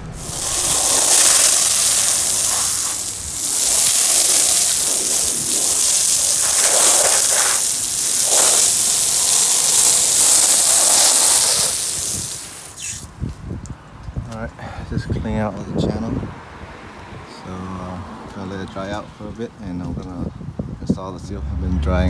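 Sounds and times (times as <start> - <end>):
air jet hissing: 0.0 - 13.1.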